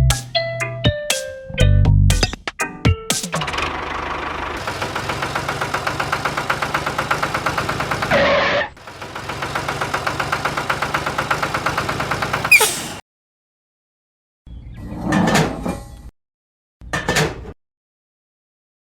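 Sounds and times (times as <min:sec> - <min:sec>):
tractor engine chugging: 0:04.0 - 0:08.2, 0:08.8 - 0:13.0
short noisy burst: 0:12.4 - 0:13.0.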